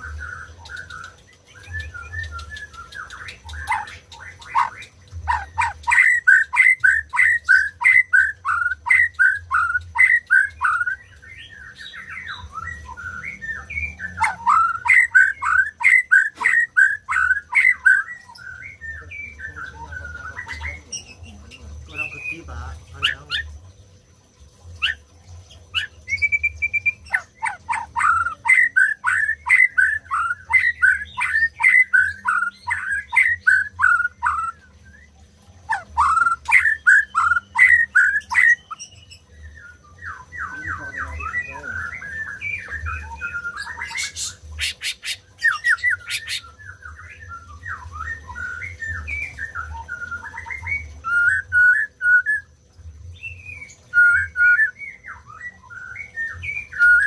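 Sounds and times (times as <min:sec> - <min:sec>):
bird singing whistled notes: 0:00.0 - 0:57.0
bird sharp clicks: 0:00.6 - 0:05.0.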